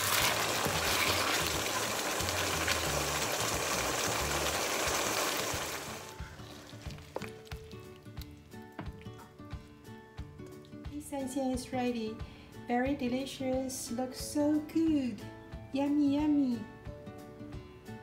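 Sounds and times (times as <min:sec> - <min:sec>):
wooden spatula scraping wok: 0:00.0 - 0:01.9
food sizzling in a wok: 0:00.0 - 0:07.0
background music: 0:00.0 - 0:18.0.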